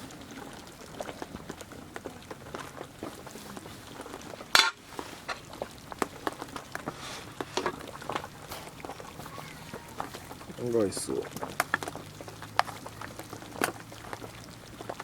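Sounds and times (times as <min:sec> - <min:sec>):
cookware clinking and clattering: 0:04.4 - 0:05.4.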